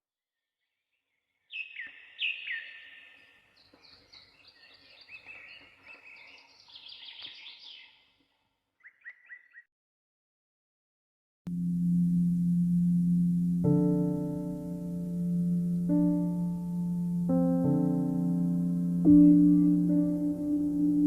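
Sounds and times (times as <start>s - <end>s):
small birds chirping: 1.0s - 9.7s, 19.0s - 21.0s.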